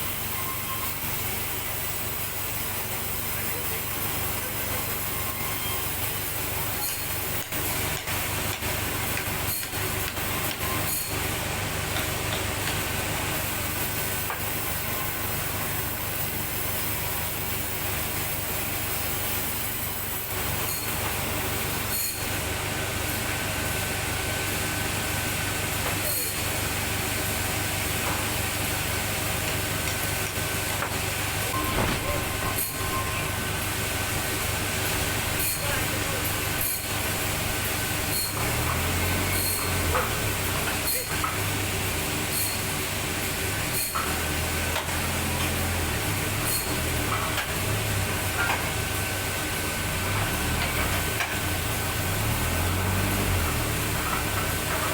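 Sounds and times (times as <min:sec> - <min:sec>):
saw hissing: 0:31.0 - 0:54.9.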